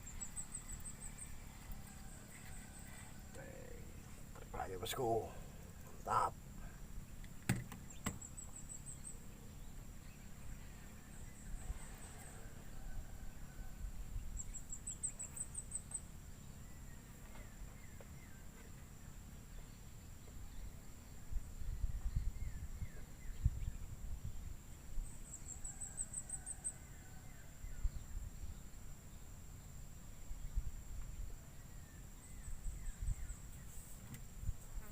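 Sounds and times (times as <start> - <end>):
low rumbling wind: 7.8 - 14.9, 19.6 - 25.8, 26.8 - 34.8.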